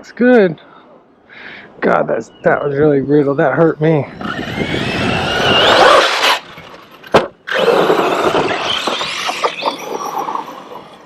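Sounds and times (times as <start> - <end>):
rc truck motor whining: 4.1 - 11.0.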